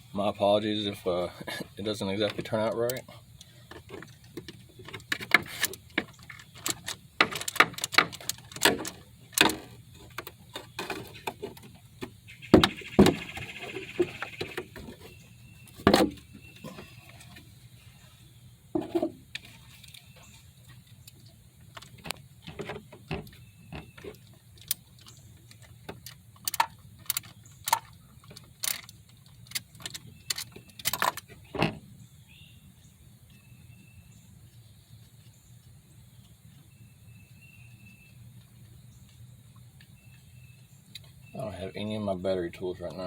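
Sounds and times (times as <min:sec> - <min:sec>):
sharp knocks: 0:12.5 - 0:13.4.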